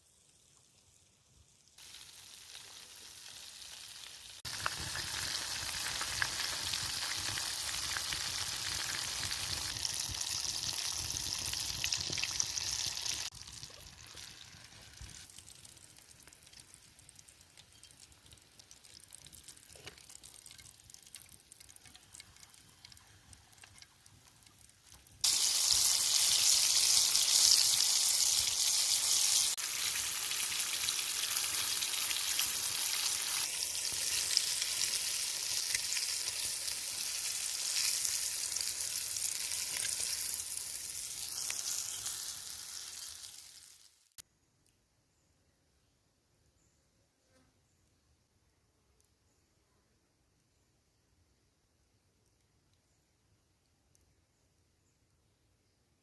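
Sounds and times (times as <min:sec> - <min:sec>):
chicken frying in hot oil: 0:00.0 - 0:44.2.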